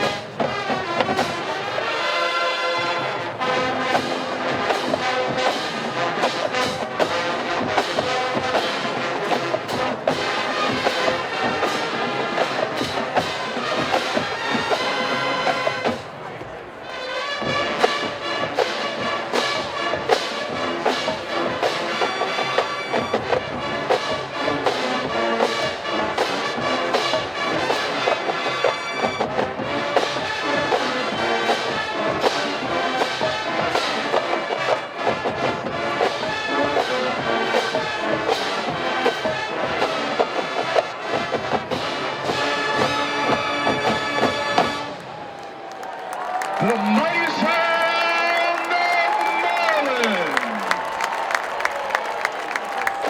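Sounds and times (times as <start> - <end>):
marching band brass: 0.0 - 53.0
steady drum beat: 3.8 - 16.2.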